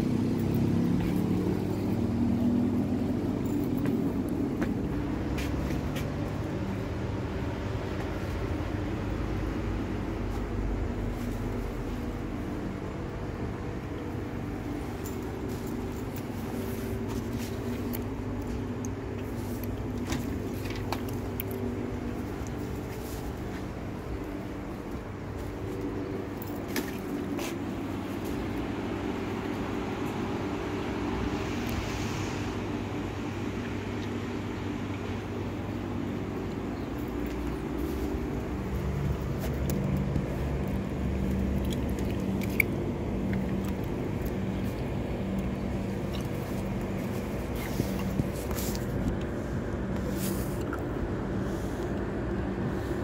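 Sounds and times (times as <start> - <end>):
engine humming: 0.0 - 53.0.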